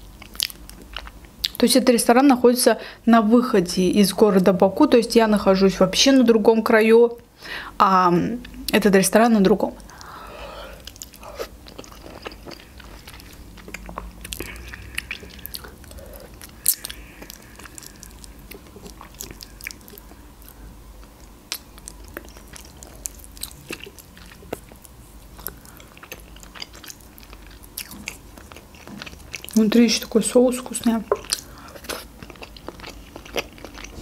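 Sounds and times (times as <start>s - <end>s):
close chewing and crunching: 0.0s - 1.6s, 9.8s - 34.0s.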